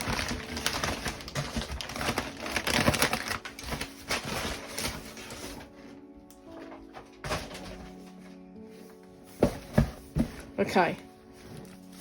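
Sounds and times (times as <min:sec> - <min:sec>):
packaging bag crinkling: 0:00.0 - 0:05.8.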